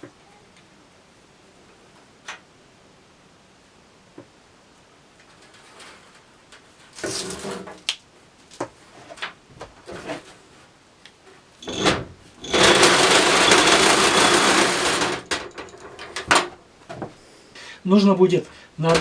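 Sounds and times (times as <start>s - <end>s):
belt sander running: 11.6s - 15.3s
handling knocks and clicks: 11.6s - 17.2s.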